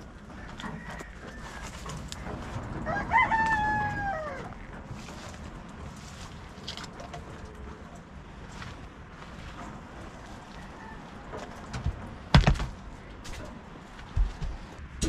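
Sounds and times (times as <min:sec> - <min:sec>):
rooster crowing: 0:00.3 - 0:02.0, 0:02.8 - 0:04.6, 0:10.4 - 0:11.3.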